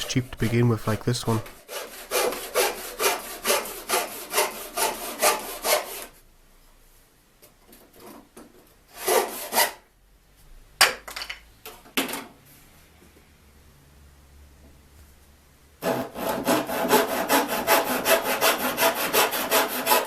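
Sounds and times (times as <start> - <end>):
handsaw cutting wood: 1.3 - 6.1, 8.9 - 9.8, 15.8 - 20.0.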